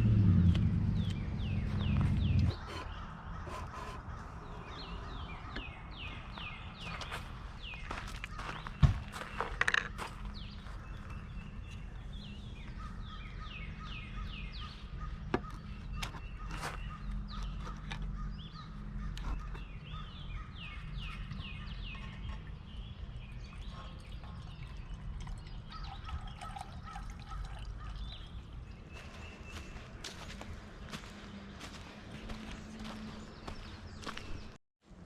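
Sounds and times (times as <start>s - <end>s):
steady low rumble: 0.0s - 7.8s
birds chirping: 0.0s - 34.6s.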